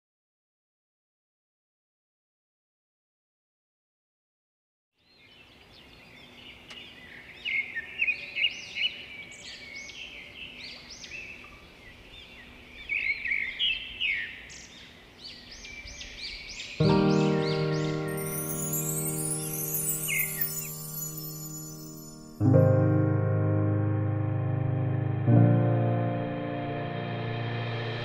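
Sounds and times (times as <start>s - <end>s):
birds chirping and singing: 5.0s - 22.4s.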